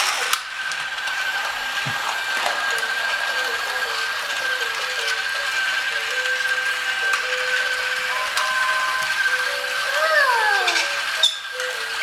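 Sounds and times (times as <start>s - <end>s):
toy train motor whine: 0.0s - 12.0s
toy train wheels clattering: 0.0s - 12.0s
simple repeating tune: 8.1s - 9.2s.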